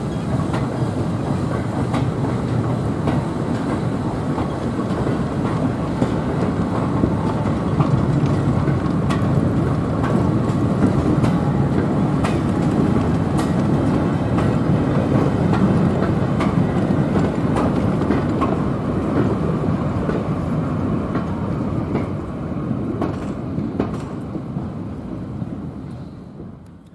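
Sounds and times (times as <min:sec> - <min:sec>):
railway coaches rumbling past: 0:00.0 - 0:26.9
wheels clicking over rail joints: 0:01.4 - 0:19.4, 0:23.0 - 0:24.4.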